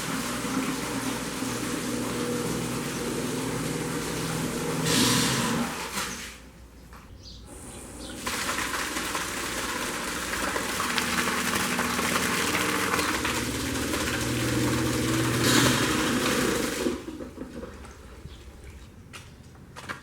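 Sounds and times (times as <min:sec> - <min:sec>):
pump motor humming: 0:00.0 - 0:06.3, 0:07.5 - 0:18.7
loud rushing water hiss: 0:04.3 - 0:06.0, 0:11.0 - 0:17.0.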